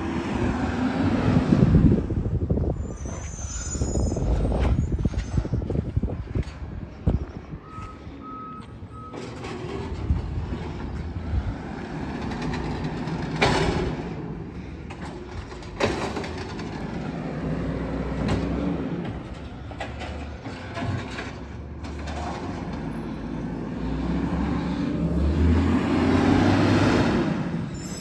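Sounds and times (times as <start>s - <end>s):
reversing alarm beeps: 7.6s - 9.3s.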